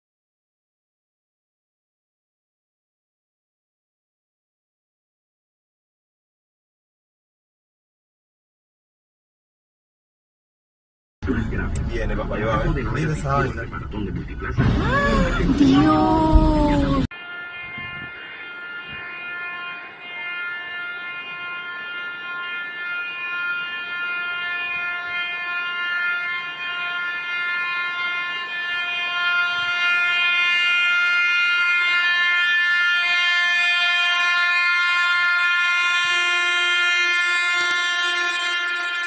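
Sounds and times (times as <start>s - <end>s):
train horn blast: 17.1s - 39.0s.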